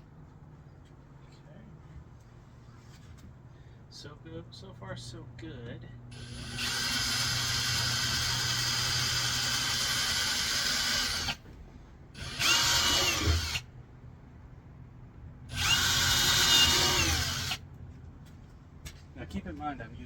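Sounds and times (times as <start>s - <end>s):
power drill running: 6.1s - 11.4s, 12.2s - 13.7s, 15.5s - 17.6s.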